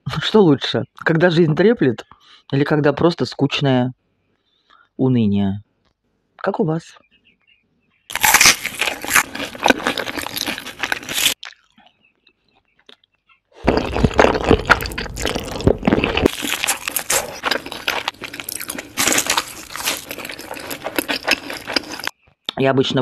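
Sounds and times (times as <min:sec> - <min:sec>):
crunching bites and chewing: 0:08.1 - 0:12.0, 0:12.8 - 0:22.1.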